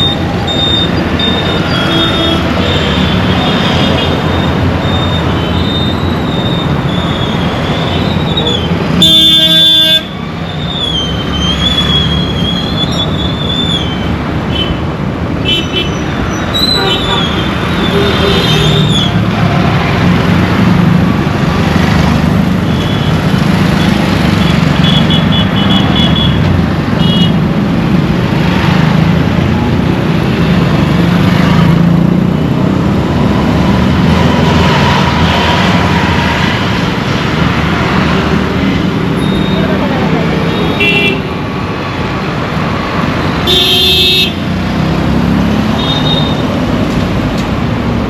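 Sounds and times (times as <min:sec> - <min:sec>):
engine and road noise: 0:00.0 - 0:48.0.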